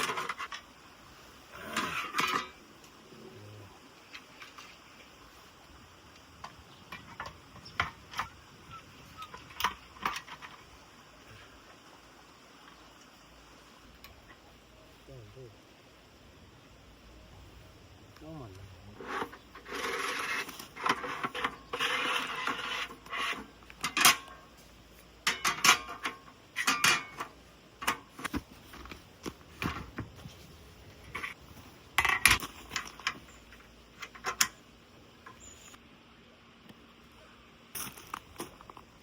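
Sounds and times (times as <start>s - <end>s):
rustling and scraping: 0.0s - 3.0s, 6.3s - 11.8s, 18.9s - 35.8s, 37.8s - 39.0s.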